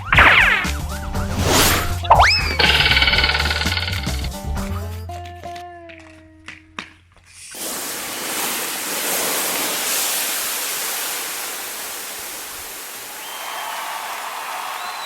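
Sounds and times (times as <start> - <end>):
hissing firefighting spray: 7.6 - 13.2.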